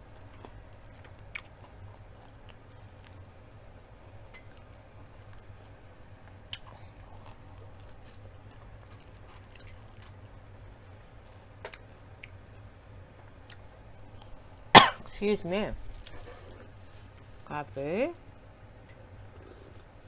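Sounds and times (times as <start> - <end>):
person chewing fried chicken: 0.0 - 3.3, 4.5 - 12.7
low steady hum: 0.0 - 20.0.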